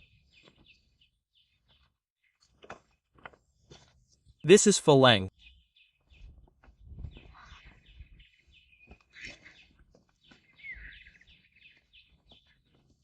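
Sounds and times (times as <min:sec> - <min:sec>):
faint bird chirps: 0:07.0 - 0:12.6.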